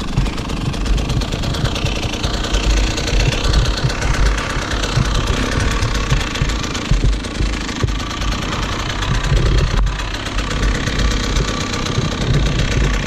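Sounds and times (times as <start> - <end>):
dirt bike engine revving: 0.0 - 13.0
short low thumps: 2.8 - 13.0.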